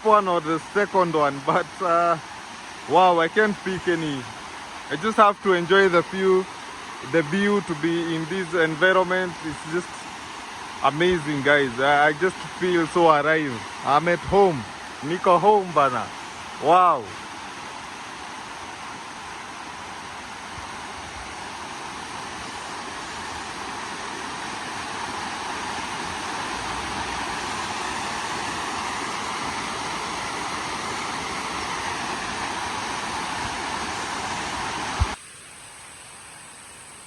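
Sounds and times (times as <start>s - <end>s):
quiet hiss: 0.0s - 37.0s
waterfall rushing: 0.0s - 37.0s.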